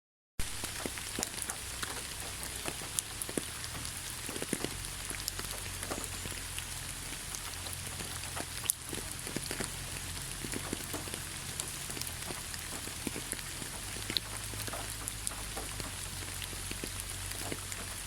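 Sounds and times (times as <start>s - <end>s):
rain falling in a forest: 0.4s - 18.0s
raindrops pattering: 0.4s - 18.0s.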